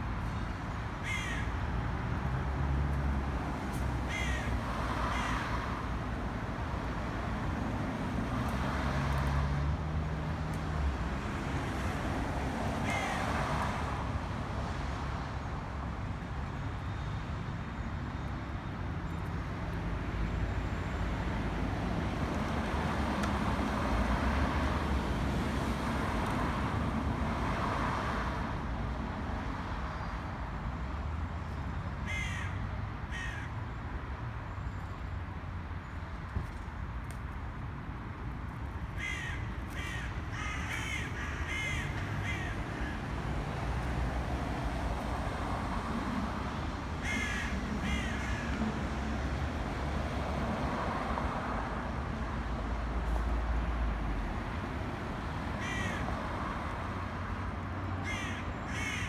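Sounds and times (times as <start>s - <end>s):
road traffic rumble: 0.0s - 59.0s
crows cawing: 1.0s - 1.6s, 4.1s - 5.5s, 12.8s - 13.3s, 32.1s - 33.6s, 39.0s - 43.1s, 47.0s - 48.6s, 55.6s - 56.2s, 58.0s - 59.0s.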